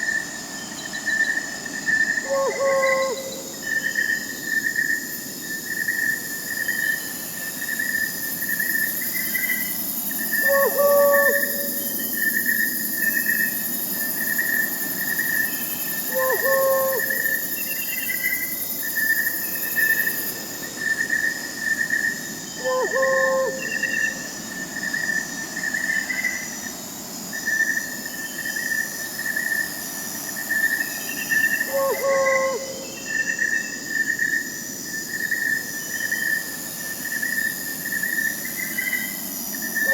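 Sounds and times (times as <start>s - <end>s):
crickets chirping: 0.0s - 39.9s
high insect tones: 0.0s - 39.9s
owl calling: 2.2s - 3.5s, 10.4s - 12.0s, 16.1s - 17.4s, 22.6s - 24.2s, 31.7s - 33.0s.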